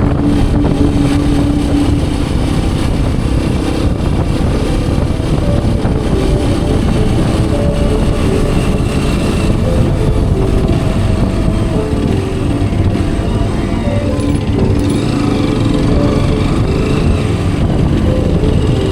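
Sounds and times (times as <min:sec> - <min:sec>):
motorcycle engine running: 0:00.0 - 0:18.9
wind rushing on microphone: 0:00.0 - 0:18.9.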